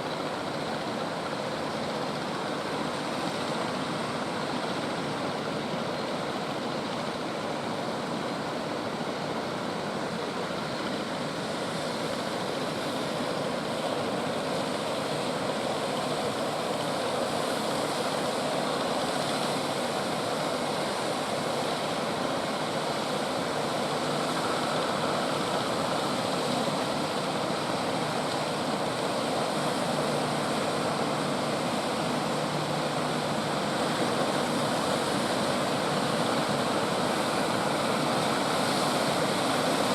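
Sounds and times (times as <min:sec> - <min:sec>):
ocean surf breaking on beach: 0:10.2 - 0:39.9.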